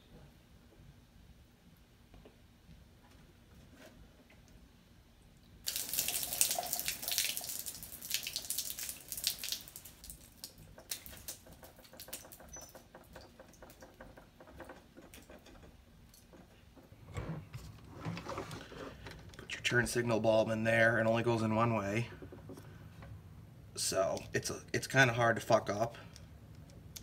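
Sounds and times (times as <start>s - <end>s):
water splashing and dripping: 5.6s - 14.2s.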